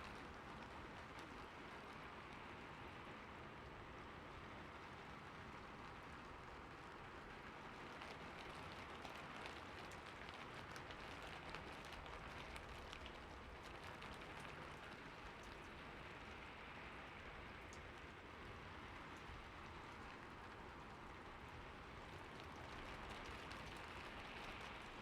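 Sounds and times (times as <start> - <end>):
rain falling on a roof: 0.0 - 25.0.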